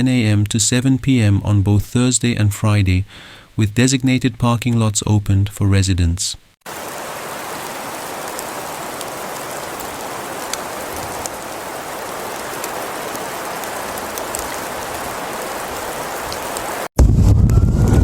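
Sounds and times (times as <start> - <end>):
rain pattering on surfaces: 6.6 - 16.9.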